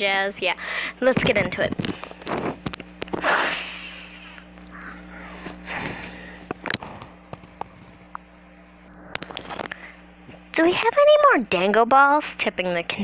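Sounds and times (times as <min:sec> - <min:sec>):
faint electrical hum: 0:00.0 - 0:13.0
person breathing: 0:00.6 - 0:01.0, 0:03.2 - 0:07.1.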